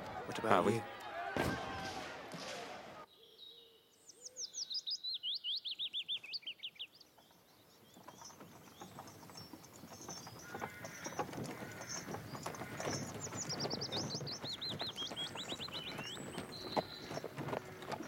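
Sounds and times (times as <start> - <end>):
horse-drawn carts clattering: 7.2 - 18.0.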